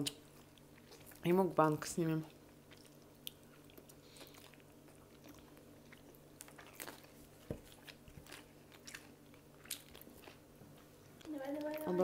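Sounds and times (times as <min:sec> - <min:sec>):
faint steady hum: 0:00.0 - 0:12.0
chewing and biting crust: 0:02.5 - 0:11.8.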